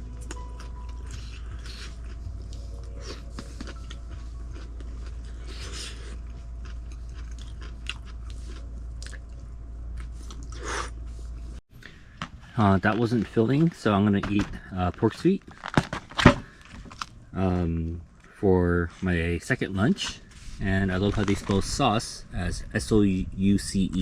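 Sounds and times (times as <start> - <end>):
person chewing noodles: 0.0 - 11.4
steady low hum: 0.0 - 24.0.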